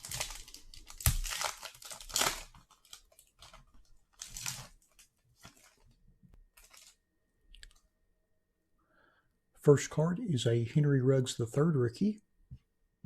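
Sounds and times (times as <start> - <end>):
foil wrapper tearing and crinkling: 0.0 - 5.9, 6.5 - 7.0.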